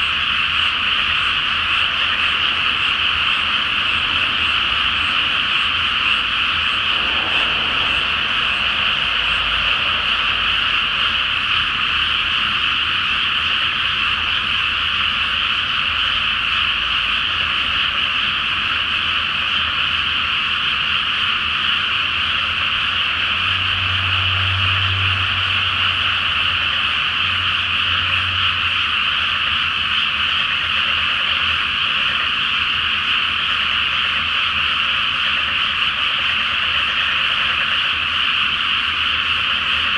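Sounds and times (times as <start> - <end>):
chorus of frogs croaking: 0.0 - 39.9
faint low hum: 0.6 - 12.8.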